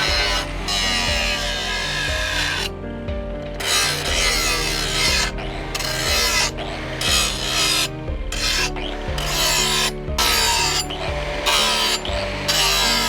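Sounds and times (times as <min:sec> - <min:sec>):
hand file rasping on steel: 0:00.0 - 0:02.7, 0:03.6 - 0:13.0.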